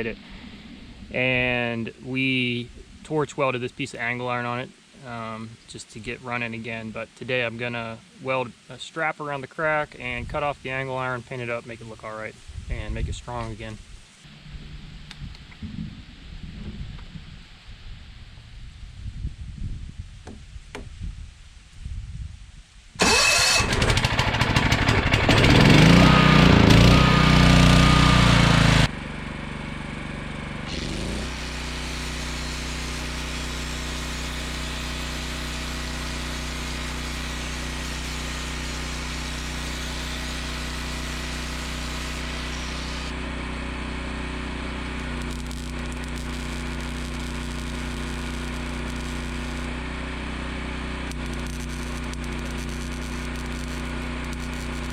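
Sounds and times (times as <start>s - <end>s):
generator engine running: 23.0s - 54.9s.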